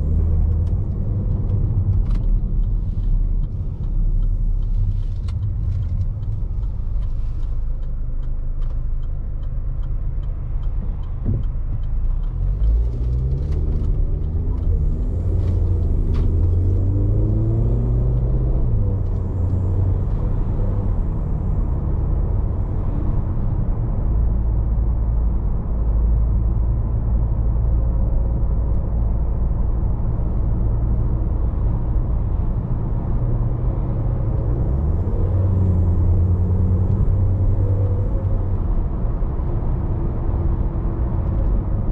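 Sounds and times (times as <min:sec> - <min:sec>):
car engine accelerating: 0:00.0 - 0:41.9
light regular ticks: 0:00.2 - 0:20.3
tyre and road rumble: 0:10.8 - 0:41.9.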